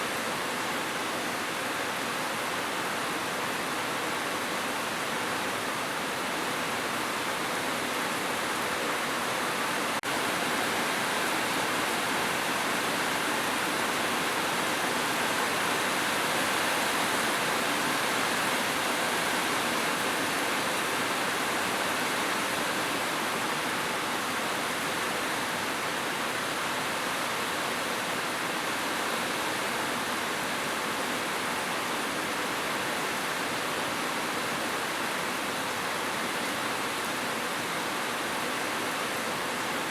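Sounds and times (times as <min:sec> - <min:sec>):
heavy rain on a roof: 0:00.0 - 0:39.9.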